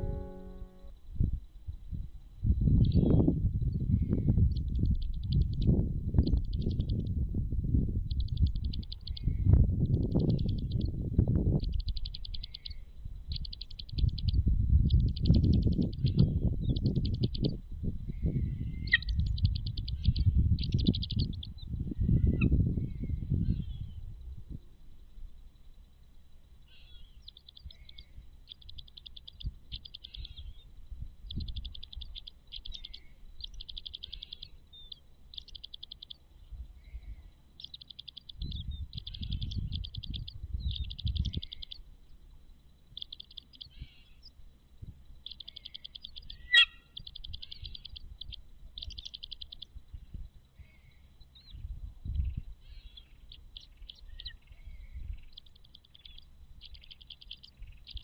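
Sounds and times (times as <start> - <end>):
birds trilling: 0.0 - 0.9, 15.0 - 17.5, 26.5 - 44.4, 45.0 - 51.6, 52.2 - 58.0
low rumbling noise: 0.0 - 58.0.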